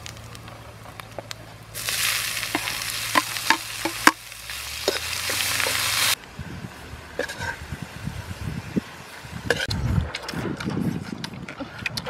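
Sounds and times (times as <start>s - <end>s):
snails sizzling in hot pan: 1.7s - 6.2s.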